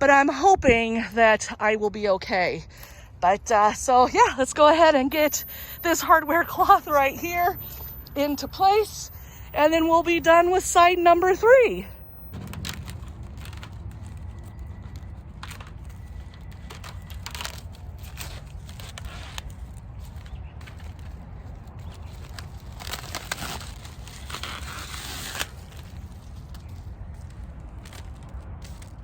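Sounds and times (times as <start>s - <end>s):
steady low rumble: 2.4s - 29.0s.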